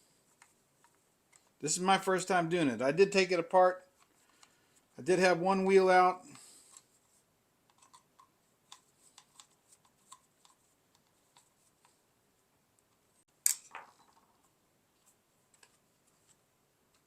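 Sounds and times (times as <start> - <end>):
sharp plastic clack: 13.4 - 13.9.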